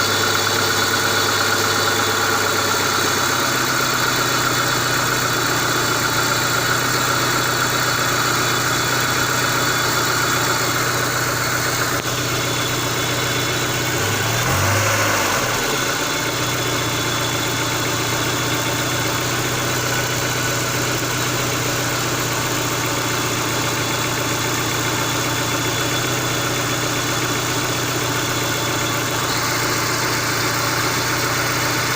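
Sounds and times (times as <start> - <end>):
engine idling: 0.0 - 31.9.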